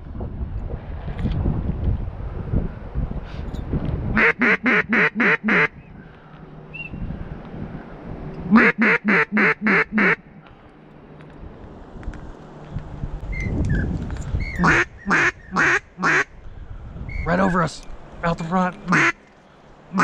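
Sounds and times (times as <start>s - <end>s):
mallard quacks: 4.2s - 5.7s, 8.5s - 10.2s, 14.6s - 16.3s, 18.9s - 19.2s.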